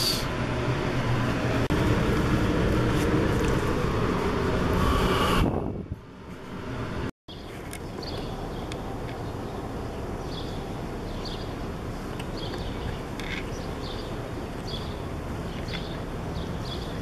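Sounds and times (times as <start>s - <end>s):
low outdoor rumble: 0.0s - 7.1s.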